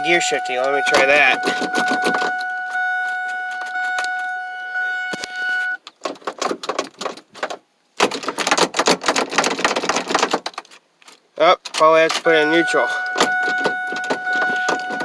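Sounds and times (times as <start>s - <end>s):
dashboard warning tone: 0.0s - 5.8s, 12.2s - 15.0s
gear shift lever rattling: 0.6s - 4.2s, 5.9s - 10.8s, 11.6s - 15.0s.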